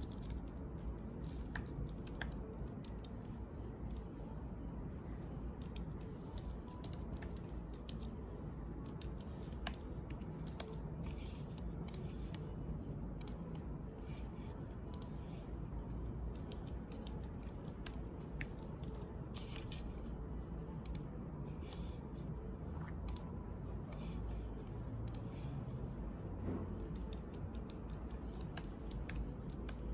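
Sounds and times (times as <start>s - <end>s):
keyboard typing: 0.0s - 4.1s, 5.5s - 20.0s, 25.0s - 25.5s, 26.1s - 29.9s
steady low hum: 0.0s - 29.9s.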